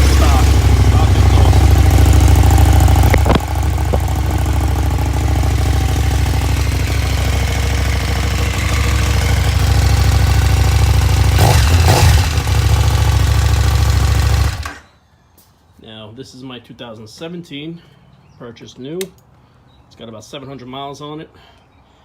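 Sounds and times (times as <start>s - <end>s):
motorcycle engine idling: 0.0s - 14.9s.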